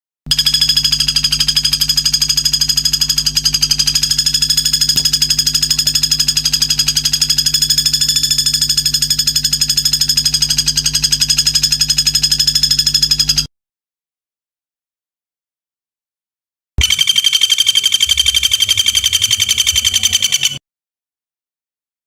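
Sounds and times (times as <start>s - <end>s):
songbird trilling: 17.1s - 20.6s.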